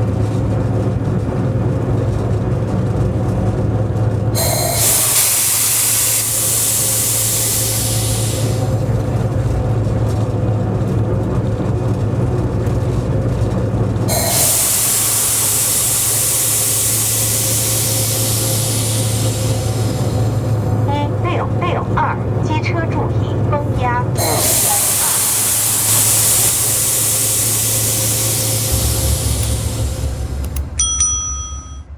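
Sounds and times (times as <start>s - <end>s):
train locomotive drone: 0.0s - 31.9s
hissing air bursts: 4.4s - 9.1s, 14.1s - 21.4s, 23.5s - 30.8s.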